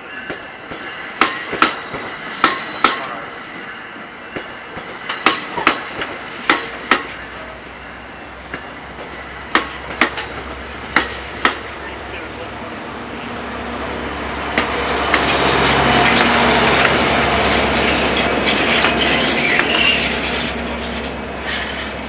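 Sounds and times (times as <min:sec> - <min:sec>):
train wheels clicking over rail joint: 0:00.3 - 0:03.7, 0:04.4 - 0:07.2, 0:08.5 - 0:11.7
faint high wheel squeal: 0:06.8 - 0:09.0, 0:11.9 - 0:14.2, 0:18.6 - 0:21.9.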